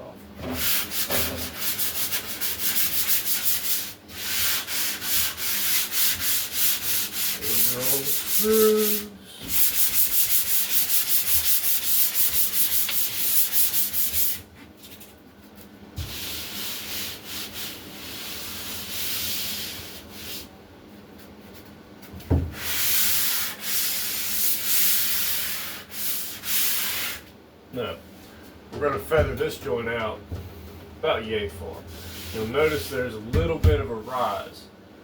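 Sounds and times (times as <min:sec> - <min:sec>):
sanding sponge rasping on drywall: 0:00.4 - 0:14.4, 0:16.0 - 0:20.5, 0:22.6 - 0:27.3, 0:32.0 - 0:33.0.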